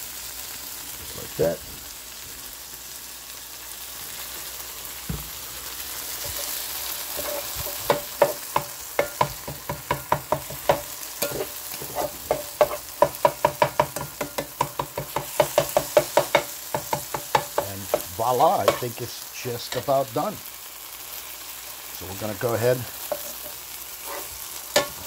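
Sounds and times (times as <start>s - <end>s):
meat and peppers sizzling: 0.0s - 25.0s
spatula chopping and scraping pan: 6.1s - 19.1s, 19.7s - 20.2s, 22.4s - 25.0s.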